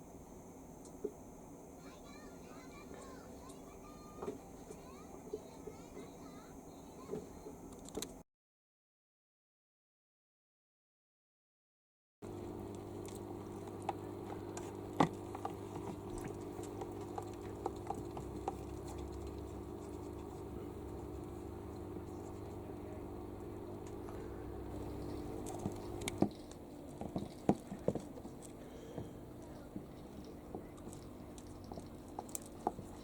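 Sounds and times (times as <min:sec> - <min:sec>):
motor humming: 0:12.2 - 0:33.0.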